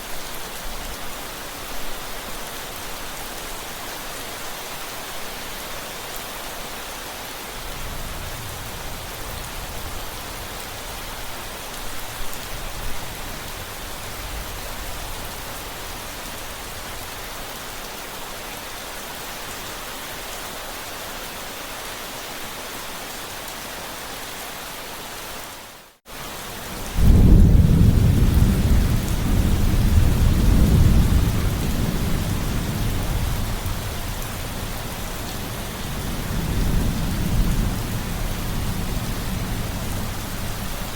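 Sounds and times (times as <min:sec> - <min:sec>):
steady rain falling: 0:00.0 - 0:40.9
thunder rumbling: 0:26.7 - 0:40.9.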